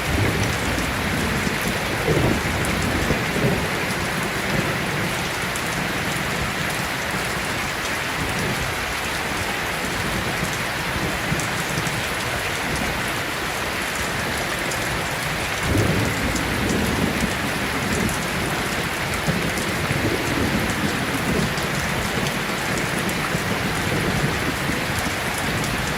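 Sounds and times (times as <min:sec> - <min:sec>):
thunder rumbling: 0:00.0 - 0:06.9, 0:14.9 - 0:25.9
heavy rain: 0:00.0 - 0:25.9.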